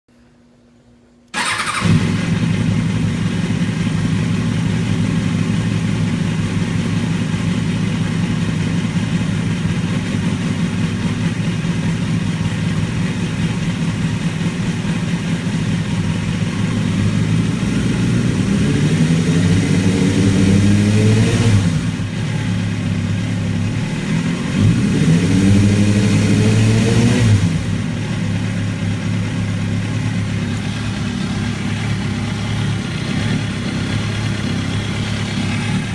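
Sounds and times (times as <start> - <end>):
engine starting and revving: 1.3 - 3.2, 18.3 - 22.1, 24.6 - 27.8.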